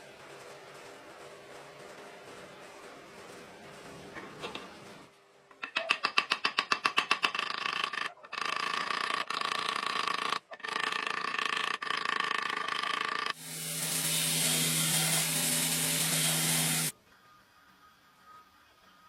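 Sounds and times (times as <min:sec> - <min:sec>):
power tool striking steel: 0:13.3 - 0:16.9
power tool whining: 0:13.3 - 0:16.9.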